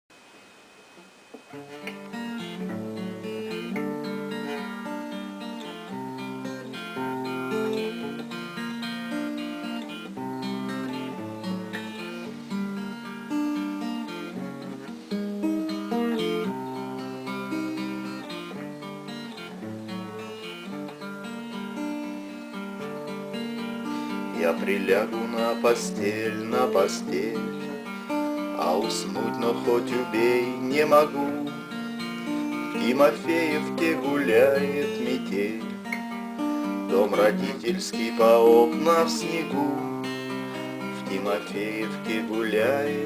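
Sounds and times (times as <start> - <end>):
acoustic guitar: 0.8 - 43.0.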